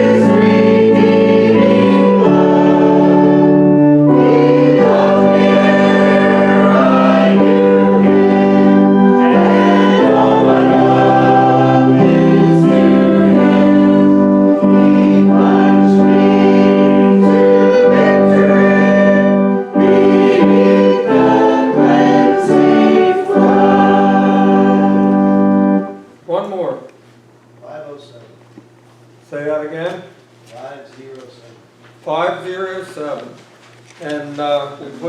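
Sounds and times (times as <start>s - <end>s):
congregation singing a hymn: 0.0s - 26.0s
organ accompaniment: 0.0s - 26.2s.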